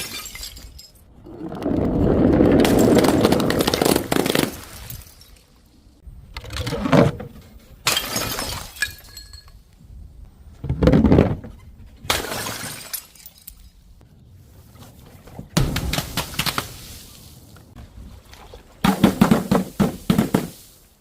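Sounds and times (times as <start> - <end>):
glass bottles smashing: 0.0 - 1.2, 2.6 - 5.6, 7.8 - 9.6, 12.1 - 13.8.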